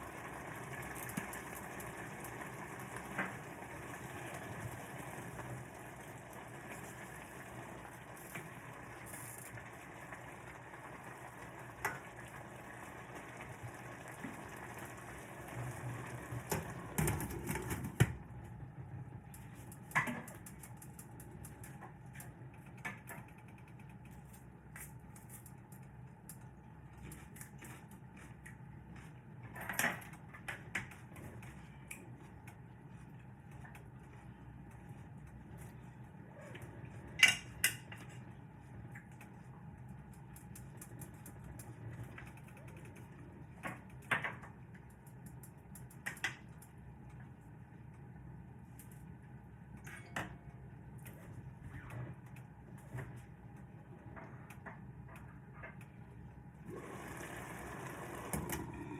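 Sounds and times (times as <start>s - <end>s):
food crackling in a pan: 0.0s - 17.9s.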